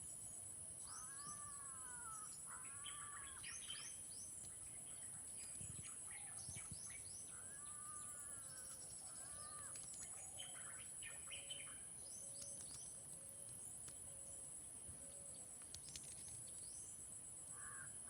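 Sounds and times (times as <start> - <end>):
birds chirping and calling: 0.8 - 5.0.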